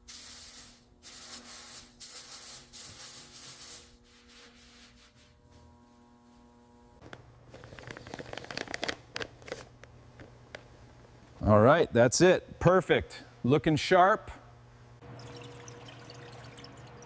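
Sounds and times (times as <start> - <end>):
crackling clicks and rubs: 7.0 - 10.7.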